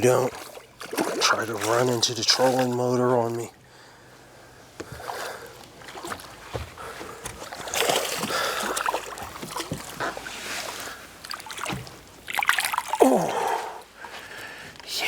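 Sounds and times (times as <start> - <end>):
fish splashing in water: 0.3 - 2.7, 7.3 - 13.8.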